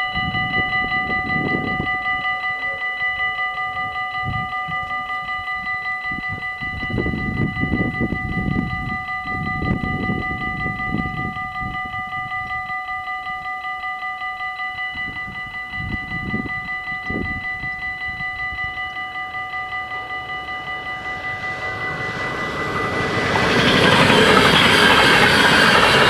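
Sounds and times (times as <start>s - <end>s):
level crossing bells ringing: 0.0s - 26.0s
low rumble: 19.7s - 26.0s.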